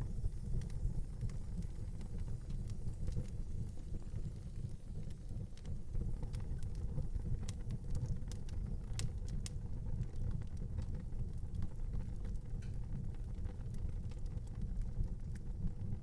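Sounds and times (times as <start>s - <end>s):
burning wood crackling and popping: 0.0s - 16.0s
low rumble of flames: 0.0s - 16.0s.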